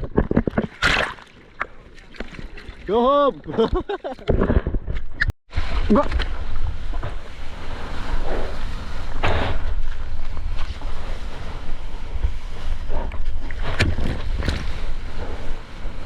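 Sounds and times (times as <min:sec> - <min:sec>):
water splashes: 0:00.0 - 0:04.3
ocean water: 0:00.0 - 0:04.5, 0:05.5 - 0:16.0.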